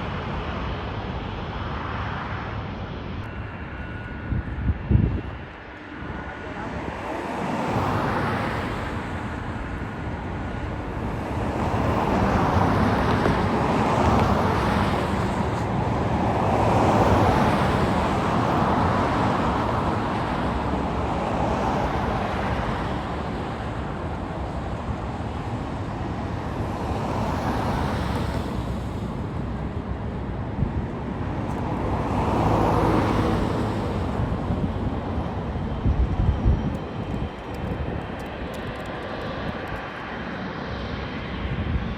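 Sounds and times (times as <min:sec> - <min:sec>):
road traffic passing: 0:03.0 - 0:41.9.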